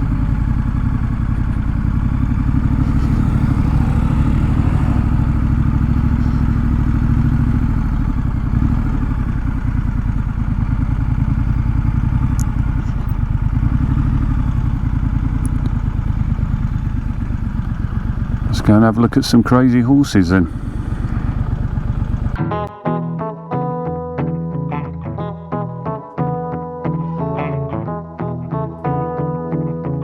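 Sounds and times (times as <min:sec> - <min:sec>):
motorcycle engine running: 0:00.0 - 0:22.4.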